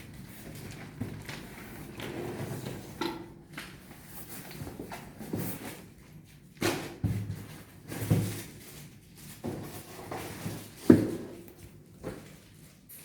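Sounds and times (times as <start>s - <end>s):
cardboard box knocks and thumps: 10.6s - 11.4s.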